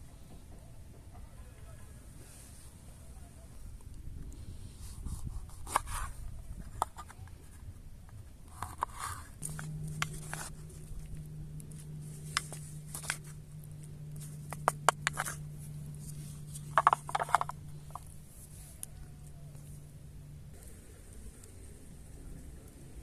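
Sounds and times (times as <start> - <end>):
low steady hum: 0.0 - 23.0
handling clicks and scrapes: 3.8 - 19.8.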